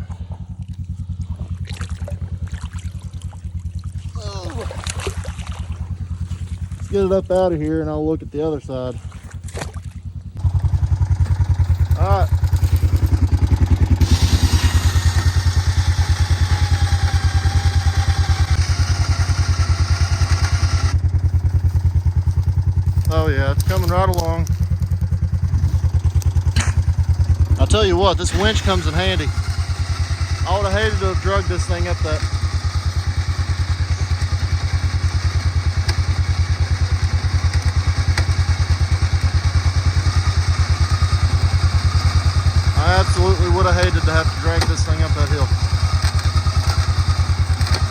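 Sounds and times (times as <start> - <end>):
vehicle engine idling: 0.0 - 47.9
winch whining: 10.4 - 47.9.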